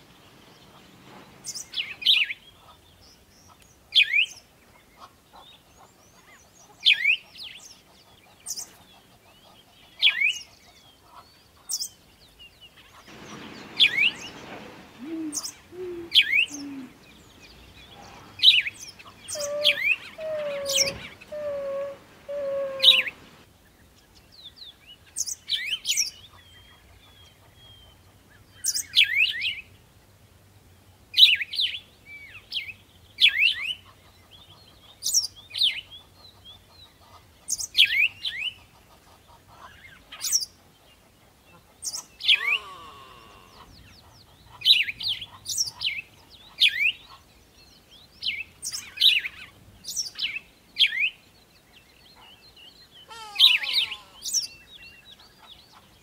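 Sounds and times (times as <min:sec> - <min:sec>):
small bird chirping: 0:13.1 - 0:23.3.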